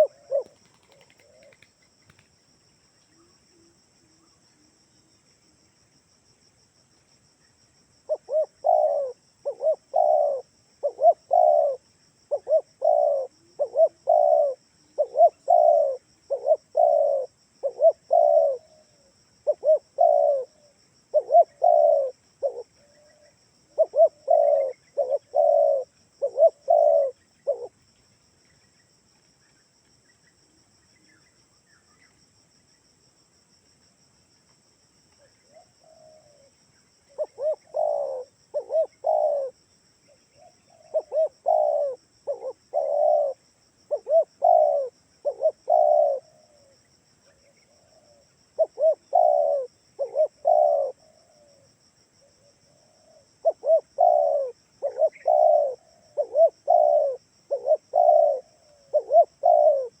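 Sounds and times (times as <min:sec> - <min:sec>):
dove cooing: 0:00.0 - 0:02.2, 0:08.1 - 0:27.8, 0:35.2 - 1:00.0.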